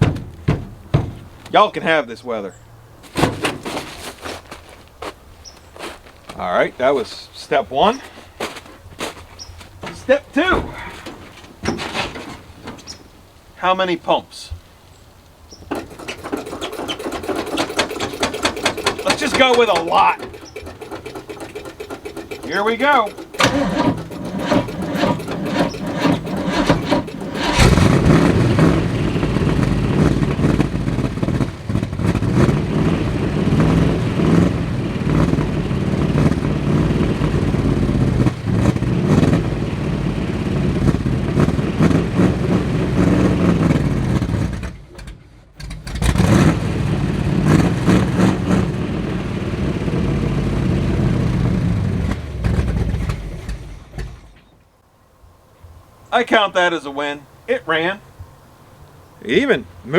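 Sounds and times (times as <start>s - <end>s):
engine starter cranking: 9.8s - 13.1s, 15.6s - 32.5s
engine running and revving: 15.7s - 54.4s.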